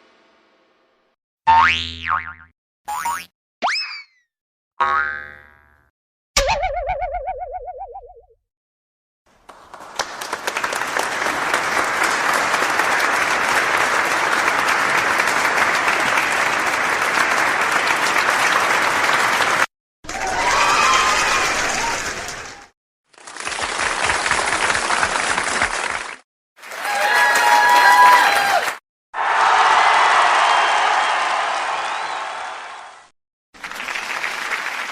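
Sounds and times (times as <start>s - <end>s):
crowd clapping: 9.3s - 34.9s.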